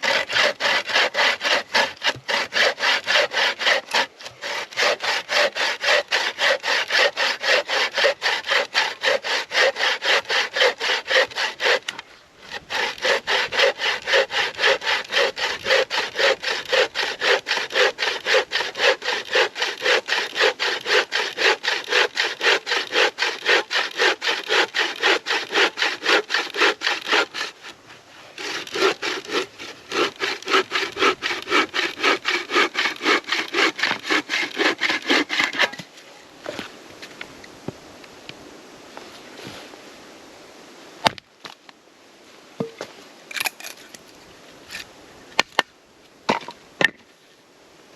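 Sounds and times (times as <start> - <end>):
hand saw cutting wood: 0.0 - 35.9, 43.3 - 44.1, 44.7 - 44.9.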